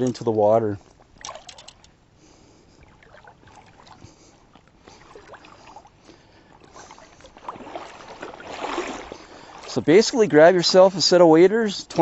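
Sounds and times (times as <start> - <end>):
water sloshing around legs: 0.9 - 2.0, 2.6 - 10.8
small clicks and knocks: 1.2 - 2.0.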